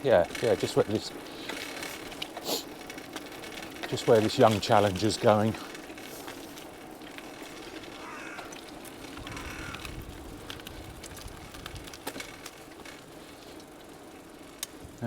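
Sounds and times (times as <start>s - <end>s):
bicycle clicks and rattles: 0.0s - 15.0s
bicycle rolling noise: 0.0s - 15.0s
bird calling: 8.0s - 10.0s.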